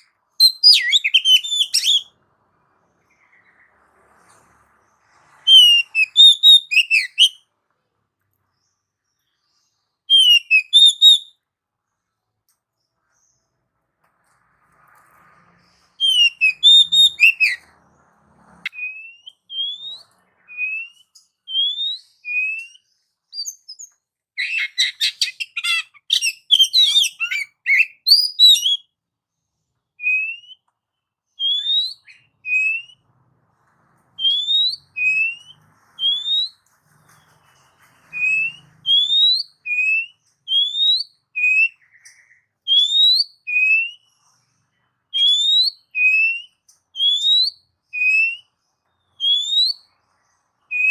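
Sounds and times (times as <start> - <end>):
bird chattering song: 0.0 - 2.1, 16.0 - 17.7, 18.7 - 28.9, 34.2 - 50.9
bird whistling song: 0.0 - 2.2, 5.2 - 7.5, 9.2 - 11.4, 15.6 - 17.8, 18.6 - 29.0, 30.0 - 30.7, 31.3 - 33.1, 34.2 - 50.9.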